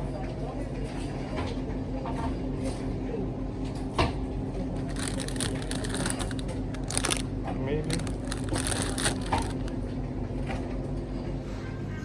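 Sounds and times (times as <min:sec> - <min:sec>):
faint voices: 0:04.6 - 0:09.8
crackling rustle of handling: 0:04.8 - 0:09.8.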